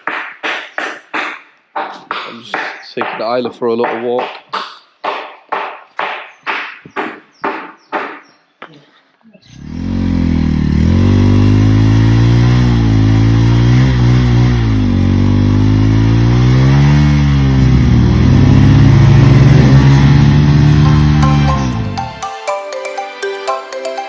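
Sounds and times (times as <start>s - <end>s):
motorcycle engine revving: 9.5s - 22.2s.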